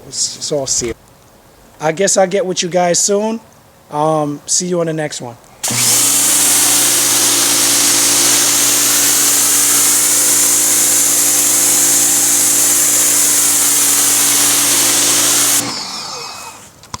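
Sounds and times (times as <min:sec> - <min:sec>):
pressure washer motor hum: 0:05.6 - 0:16.8
water jet hissing: 0:05.6 - 0:16.8.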